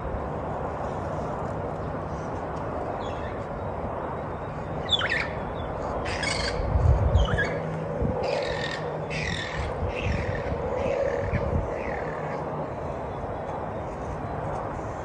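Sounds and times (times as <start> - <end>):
birds squawking: 6.0 - 12.4.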